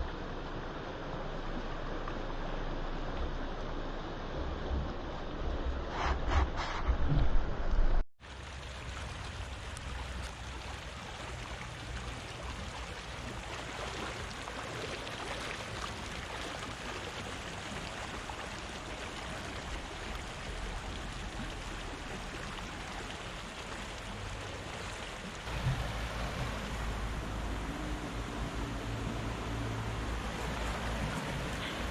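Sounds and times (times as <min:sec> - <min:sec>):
low rumble: 0:00.0 - 0:08.0
river water rushing: 0:08.3 - 0:31.9.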